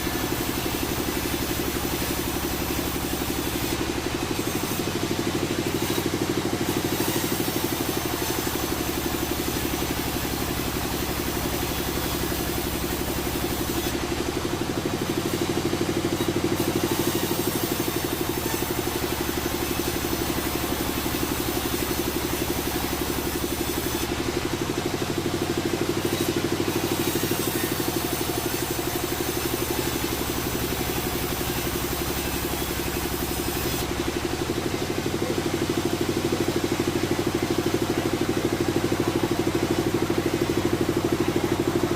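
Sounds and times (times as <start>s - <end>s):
sawmill machinery drone: 0.0s - 41.9s.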